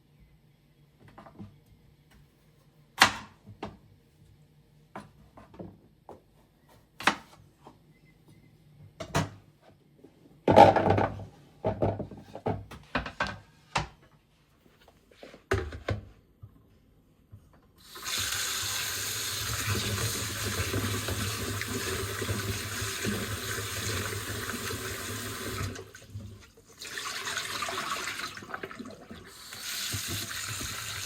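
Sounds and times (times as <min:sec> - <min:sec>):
knocks and clunks on hard surfaces: 0:10.5 - 0:14.0.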